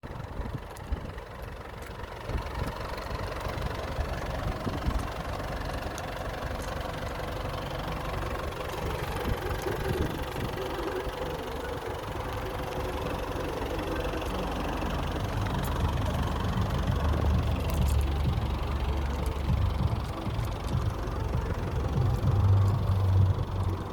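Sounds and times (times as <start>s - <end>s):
truck engine rumbling: 0.0s - 23.9s.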